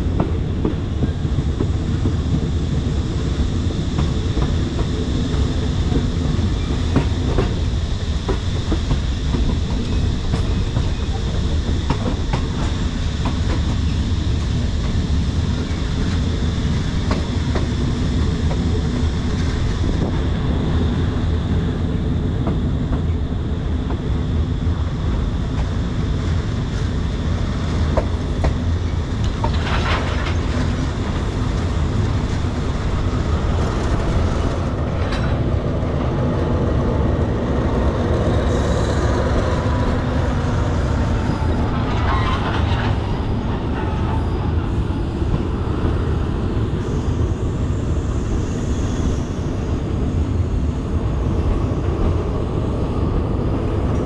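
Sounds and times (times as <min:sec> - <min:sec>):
train rumbling on rails: 0:00.0 - 0:54.0
faint thin squeal: 0:40.5 - 0:44.5, 0:46.8 - 0:51.0.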